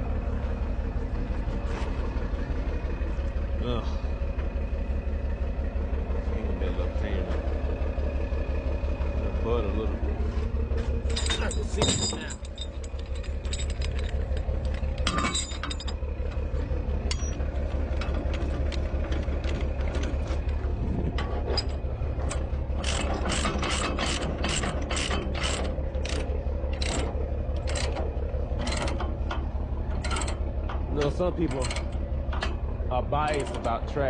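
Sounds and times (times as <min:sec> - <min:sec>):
diesel machinery rumbling: 0:00.0 - 0:34.0
sharp metallic clicks: 0:11.1 - 0:32.6.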